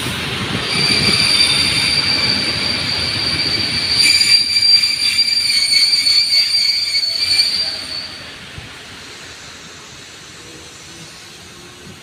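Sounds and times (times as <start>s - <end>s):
moving train rumble: 0.0s - 12.0s
train wheel squeal: 0.6s - 9.5s.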